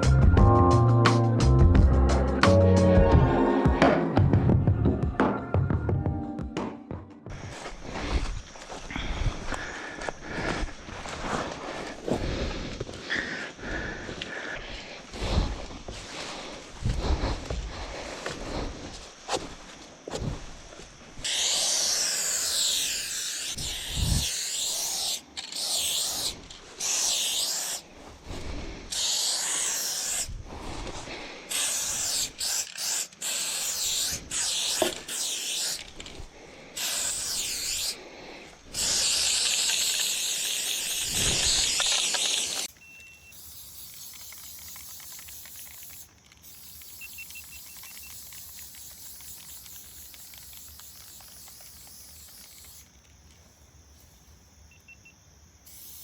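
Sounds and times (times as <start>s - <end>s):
steady background hiss: 10.7s - 56.0s
spray-paint can spraying: 21.2s - 27.8s, 28.9s - 30.3s, 31.5s - 36.1s, 36.8s - 38.0s, 38.7s - 42.7s, 43.3s - 53.0s, 55.7s - 56.0s.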